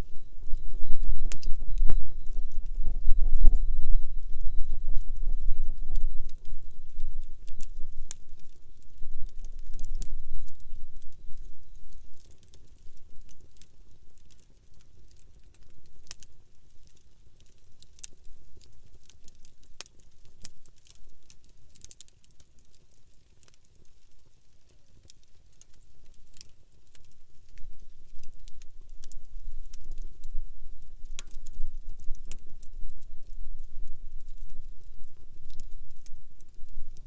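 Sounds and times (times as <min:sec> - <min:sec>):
low rumble: 0:00.0 - 0:08.1
campfire crackling and popping: 0:00.0 - 0:37.0.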